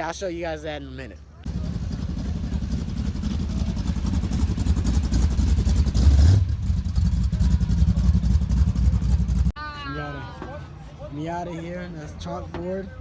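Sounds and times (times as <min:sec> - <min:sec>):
car engine idling and revving: 0:01.4 - 0:09.6.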